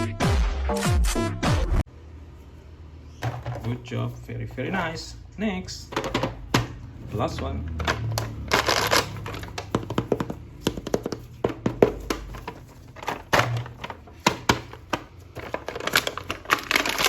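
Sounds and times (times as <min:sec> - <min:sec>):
packaging crinkling: 0:07.7 - 0:17.0.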